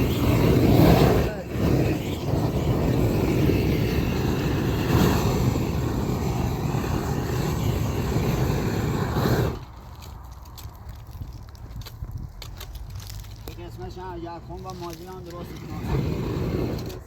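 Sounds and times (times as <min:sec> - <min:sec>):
gas torch roaring: 0:00.0 - 0:10.2, 0:14.6 - 0:17.0.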